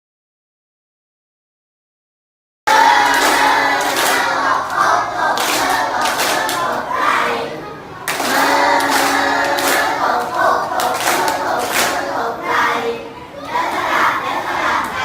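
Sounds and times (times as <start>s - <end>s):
hand claps: 2.7s - 6.8s, 8.1s - 12.1s
children singing in unison: 2.7s - 15.0s.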